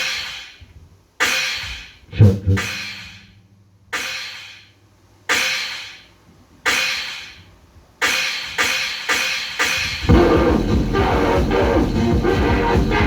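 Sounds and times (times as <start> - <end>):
sharp ringing crashing hits: 2.2 - 3.4
loud noise music: 10.1 - 13.0.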